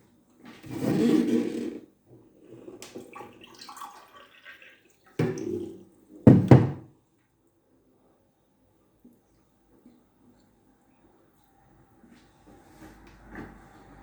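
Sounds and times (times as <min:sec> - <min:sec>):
tap water running into a glass: 0:02.9 - 0:05.7.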